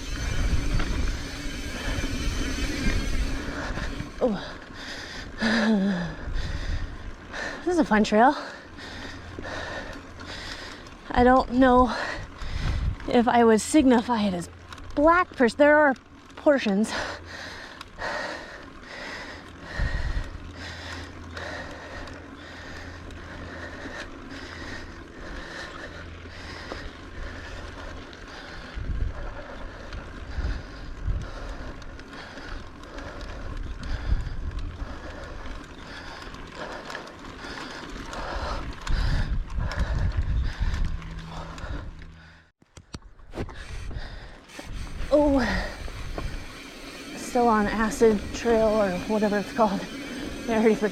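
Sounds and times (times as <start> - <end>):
wind rushing over microphone: 0.0 - 4.4, 11.8 - 13.2, 38.4 - 42.1, 43.5 - 50.9
bike knocking and rattling: 0.0 - 50.9
tyres on dirt and rocks: 0.0 - 50.9.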